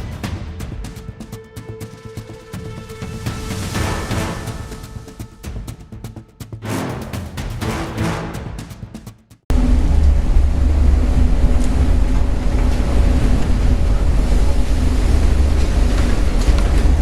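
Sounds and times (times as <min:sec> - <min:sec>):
heavy seas rumbling: 0:00.0 - 0:05.5, 0:09.5 - 0:17.0
storm wind buffeting the microphone: 0:09.5 - 0:17.0.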